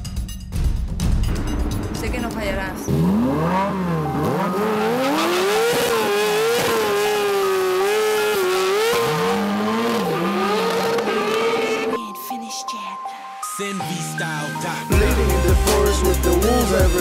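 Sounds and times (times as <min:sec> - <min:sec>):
engine revving: 0:01.4 - 0:12.0.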